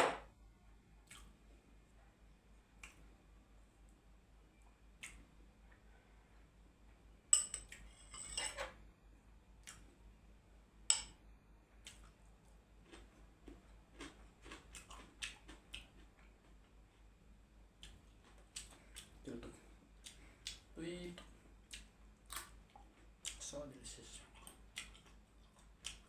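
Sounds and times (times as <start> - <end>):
utensils clinking against a dish: 7.4 - 8.7.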